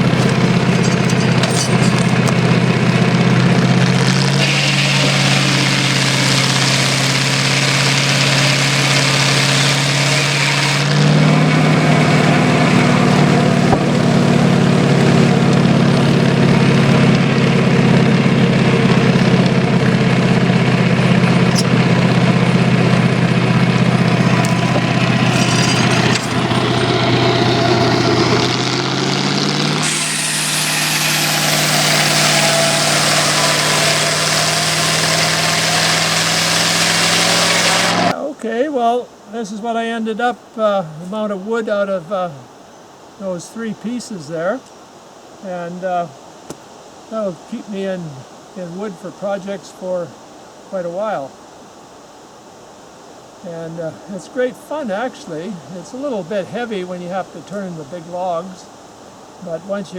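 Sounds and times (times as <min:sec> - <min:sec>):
engine running sawmill: 0:00.0 - 0:38.2.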